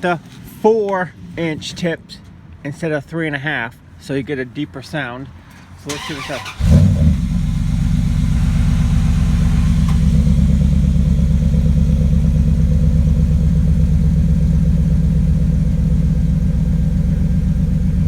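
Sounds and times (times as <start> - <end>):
truck engine idling: 6.0 - 18.0.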